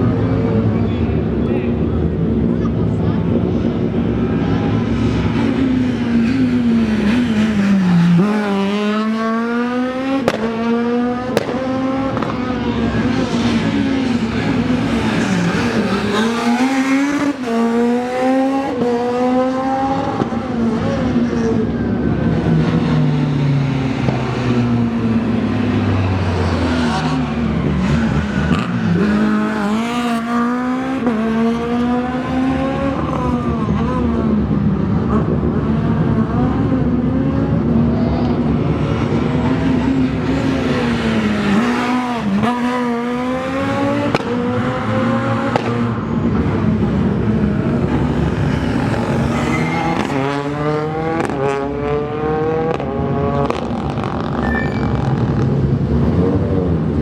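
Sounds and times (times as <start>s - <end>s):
rally car engines accelerating: 0.0s - 57.0s
car engine slowing: 21.4s - 52.8s.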